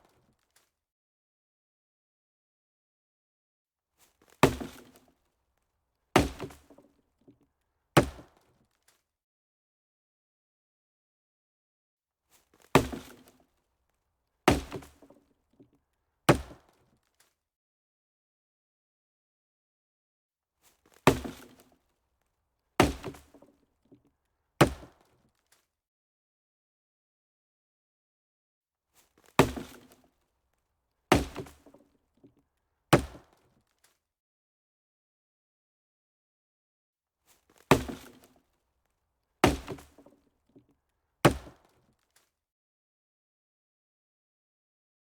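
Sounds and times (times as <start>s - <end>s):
sharp chopping impacts: 4.4s - 5.0s, 6.2s - 6.7s, 12.8s - 13.3s, 14.5s - 15.0s, 21.1s - 21.6s, 22.8s - 23.4s, 24.6s - 25.0s, 29.3s - 30.0s, 31.1s - 31.8s, 33.0s - 33.3s, 37.6s - 38.3s, 39.4s - 40.1s, 41.3s - 41.7s.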